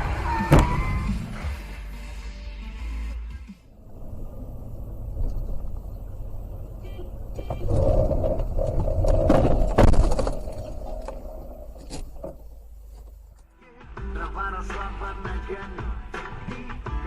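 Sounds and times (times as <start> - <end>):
car engine and road rumble: 3.6 - 13.4
steady horn tone: 3.7 - 8.5.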